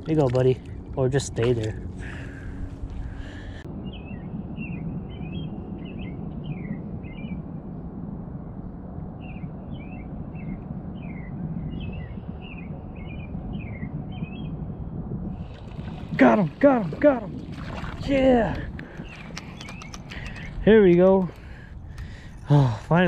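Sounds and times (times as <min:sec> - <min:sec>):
steady low rumble: 0:00.0 - 0:23.0
songbird chirping: 0:18.1 - 0:22.1.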